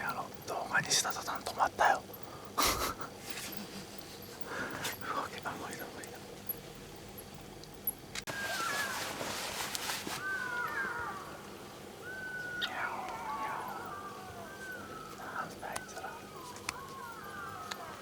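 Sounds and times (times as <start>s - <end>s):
wavering whistle-like animal calls: 8.3s - 9.2s, 10.2s - 18.0s
loud hissing rustle: 8.3s - 18.0s.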